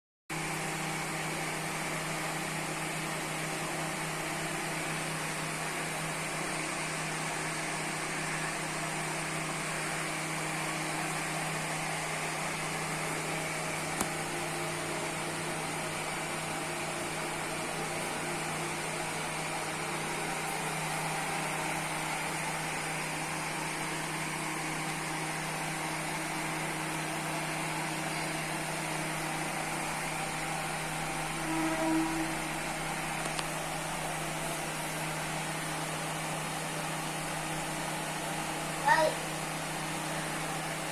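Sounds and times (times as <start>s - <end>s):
exhaust fan humming: 0.3s - 40.9s.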